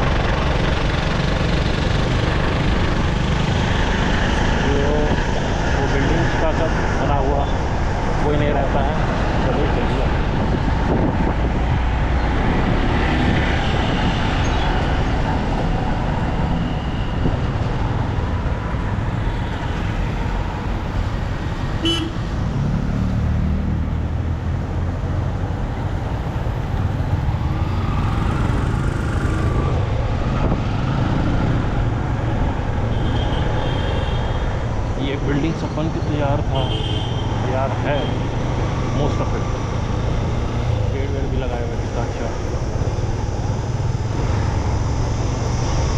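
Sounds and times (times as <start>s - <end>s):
motorcycle engine and road rumble: 0.0s - 45.9s
vehicle horns honking: 21.8s - 22.3s, 36.6s - 37.4s.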